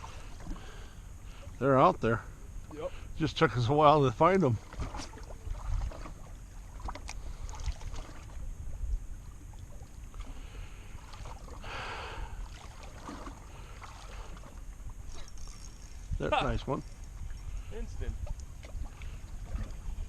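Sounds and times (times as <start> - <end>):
water against boat: 0.0 - 20.0
wind rumbling on microphone: 4.6 - 10.4, 15.9 - 20.0.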